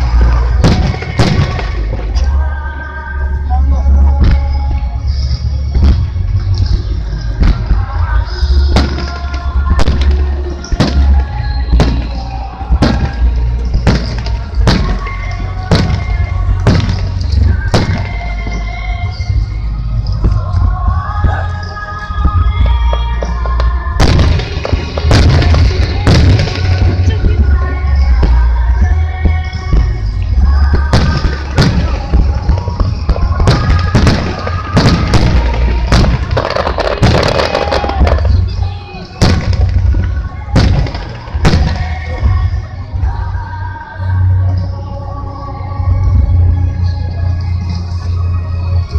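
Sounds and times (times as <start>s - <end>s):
heavy low rumble: 0.0s - 47.7s
music playing: 0.0s - 48.9s
fireworks shells bursting: 8.8s - 19.2s, 30.1s - 42.1s.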